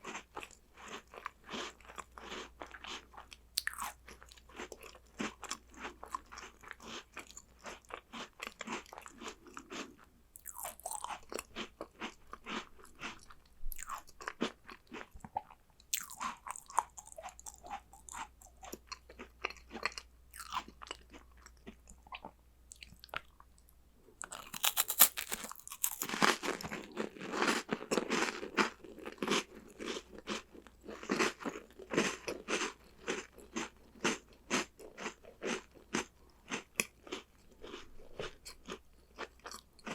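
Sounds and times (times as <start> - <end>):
crunching and chewing snacks: 0.0 - 23.4, 24.2 - 39.9.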